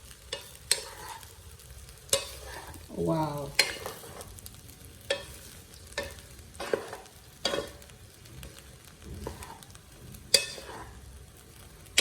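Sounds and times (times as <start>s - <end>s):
faint sizzle: 0.0s - 12.0s
wooden spoon knocking on pan: 6.0s - 10.8s.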